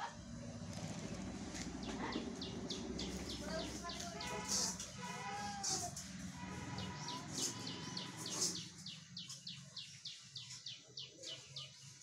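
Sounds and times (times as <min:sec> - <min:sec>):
small bird chirping: 0:06.9 - 0:12.0.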